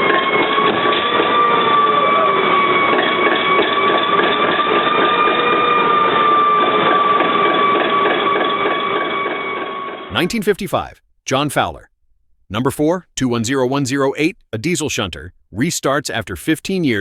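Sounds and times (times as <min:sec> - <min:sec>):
high-pitched whine: 0:00.0 - 0:10.3
diesel locomotive engine running: 0:00.0 - 0:10.6.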